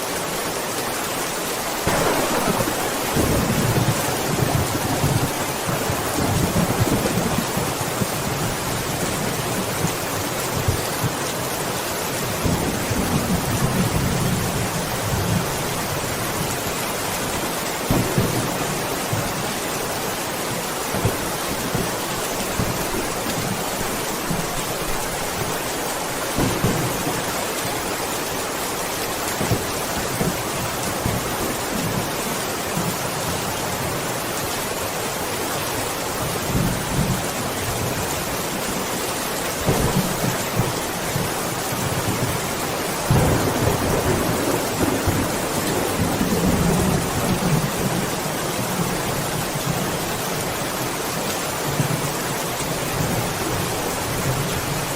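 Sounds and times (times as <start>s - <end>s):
heavy rain: 0.0s - 54.9s
thunder rumbling: 1.8s - 9.9s, 39.7s - 49.0s.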